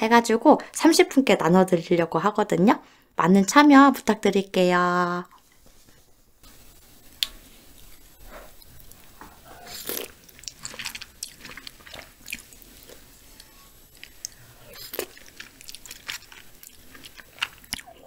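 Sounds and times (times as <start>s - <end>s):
wet chewing: 7.2s - 18.0s.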